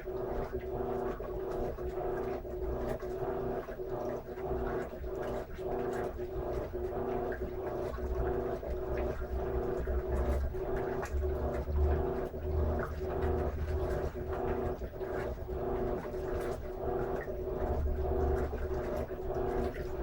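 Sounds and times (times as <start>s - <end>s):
washing machine agitating: 0.0s - 20.0s.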